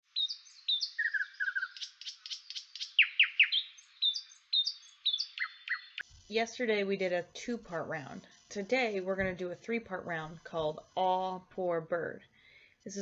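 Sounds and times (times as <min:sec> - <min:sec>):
songbirds chirping and singing: 0:00.1 - 0:06.0.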